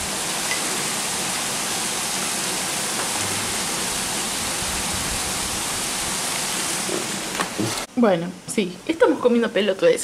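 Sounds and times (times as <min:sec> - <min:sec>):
heavy rain on a roof: 0:00.0 - 0:07.9.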